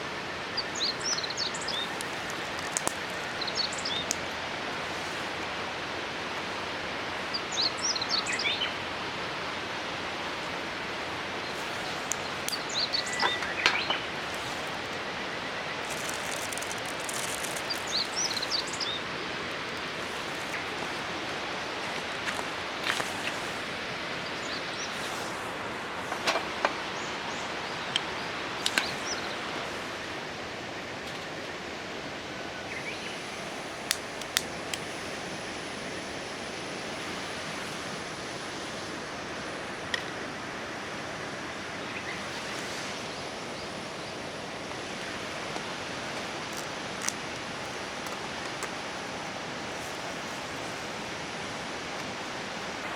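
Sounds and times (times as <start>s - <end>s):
river water rushing: 0.0s - 52.9s
bird chirps: 12.5s - 14.1s.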